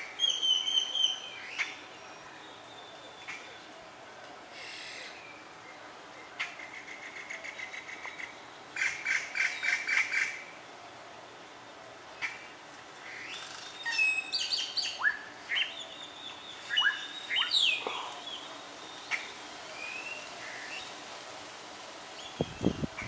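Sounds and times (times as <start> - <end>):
small birds chirping: 12.2 - 21.0.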